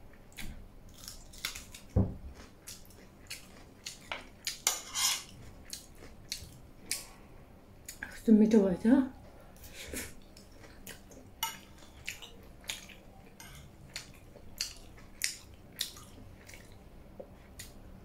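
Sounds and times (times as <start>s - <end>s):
wet chewing and mouth smacks: 10.2s - 17.8s.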